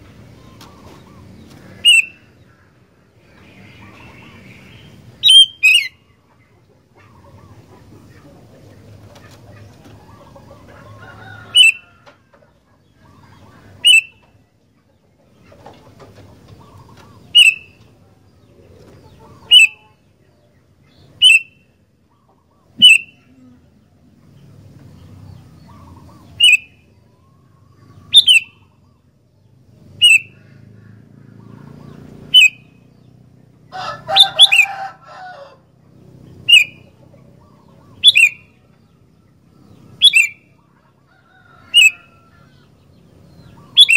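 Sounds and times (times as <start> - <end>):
bird chattering: 0.4 - 10.6, 11.4 - 11.8, 12.9 - 14.4, 15.2 - 18.0, 18.6 - 23.5, 24.1 - 28.9, 29.9 - 33.3, 34.0 - 35.0, 36.0 - 40.8, 41.4 - 43.9
bird giving sharp calls: 0.5 - 2.8, 3.6 - 6.1, 11.4 - 11.8, 13.1 - 14.2, 16.6 - 17.8, 19.2 - 20.0, 21.1 - 21.7, 22.3 - 23.4, 25.7 - 27.0, 27.9 - 28.9, 29.9 - 33.0, 33.8 - 35.6, 36.3 - 38.6, 39.9 - 40.6, 41.6 - 42.7, 43.4 - 43.9.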